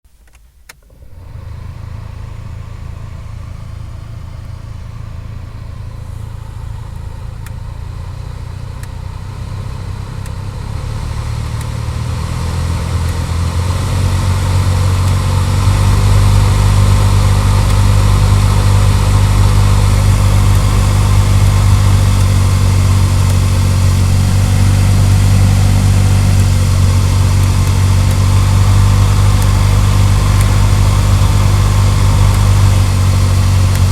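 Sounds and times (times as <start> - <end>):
blower fan motor hum: 0.5 - 33.9.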